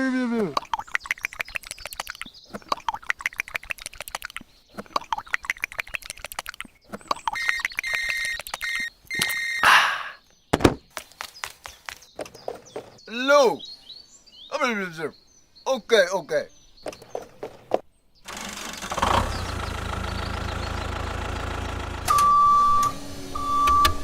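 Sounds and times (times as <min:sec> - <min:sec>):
electronic beeps: 0:07.2 - 0:09.7.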